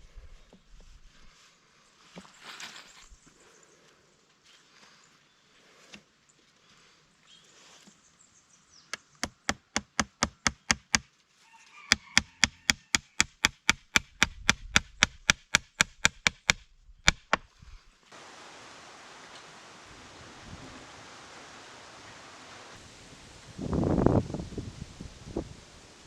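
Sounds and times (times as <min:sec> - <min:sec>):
sharp rapid knocks: 0:09.2 - 0:11.1, 0:11.9 - 0:17.5
steady hiss: 0:17.4 - 0:26.0.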